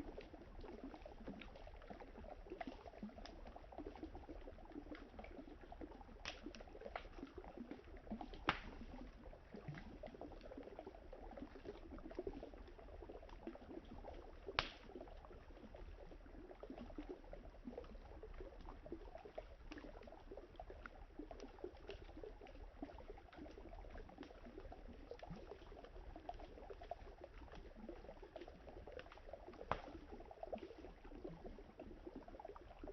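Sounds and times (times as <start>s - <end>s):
campfire crackling: 6.2s - 7.1s, 8.4s - 9.0s, 14.5s - 14.9s, 29.1s - 30.0s.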